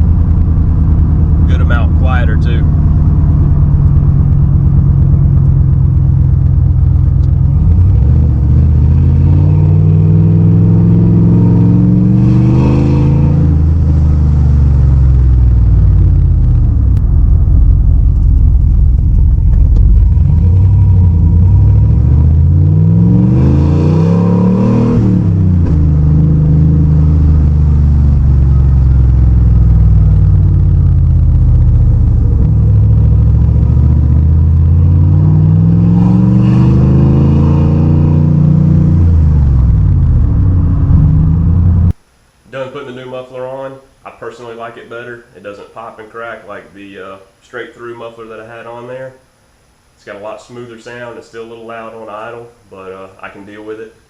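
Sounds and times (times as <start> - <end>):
truck engine idling and revving: 0.0 - 42.0.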